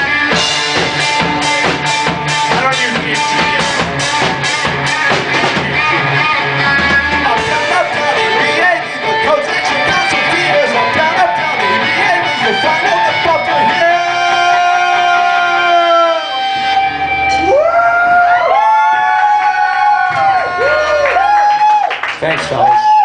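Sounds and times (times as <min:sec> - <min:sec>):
drum kit beat: 0:00.0 - 0:17.6
electric guitar: 0:00.0 - 0:21.9.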